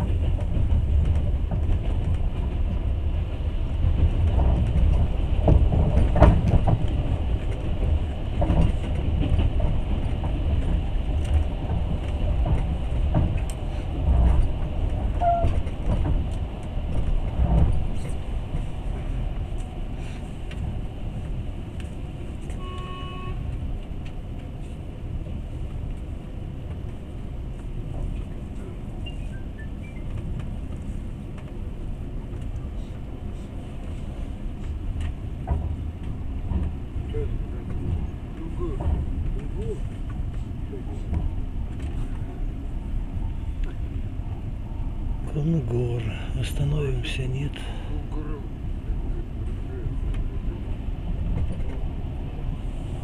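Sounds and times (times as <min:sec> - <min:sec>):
train rumbling on rails: 0:00.0 - 0:53.0
brief train toot: 0:15.2 - 0:15.6, 0:22.5 - 0:23.5.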